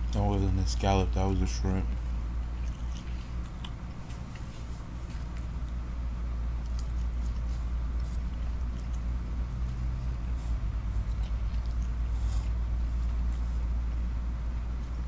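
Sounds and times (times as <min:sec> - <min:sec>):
low hum: 0:00.0 - 0:15.0
person chewing food: 0:00.0 - 0:15.0
wet mouth clicks: 0:02.6 - 0:04.5.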